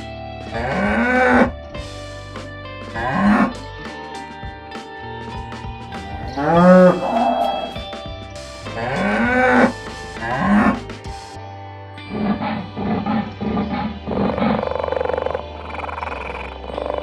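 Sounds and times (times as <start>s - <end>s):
soft background music: 0.0s - 17.0s
animal calling: 0.5s - 1.6s, 3.0s - 3.6s, 6.2s - 7.8s, 8.7s - 10.8s, 12.1s - 17.0s.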